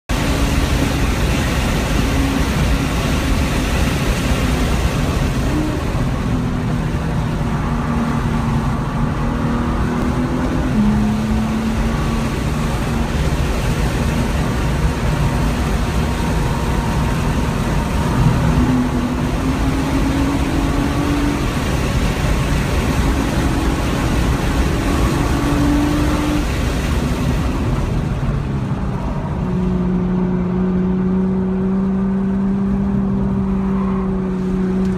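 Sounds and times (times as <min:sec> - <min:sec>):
car engine accelerating: 0:00.1 - 0:34.9.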